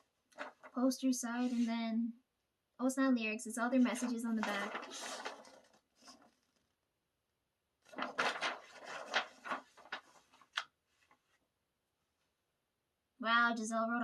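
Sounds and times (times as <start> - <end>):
paper rustling and crackling: 0.3 - 0.8, 3.8 - 6.7, 7.8 - 11.4.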